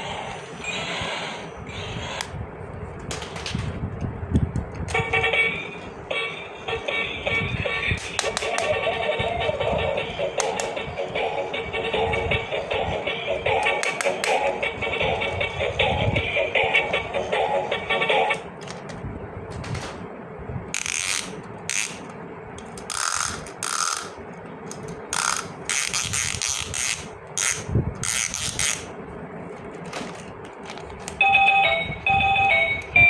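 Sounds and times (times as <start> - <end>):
toy electronic tune: 4.9 - 18.3, 31.2 - 33.0
plastic toy parts clicking: 8.0 - 8.8, 13.6 - 14.4, 20.8 - 28.9.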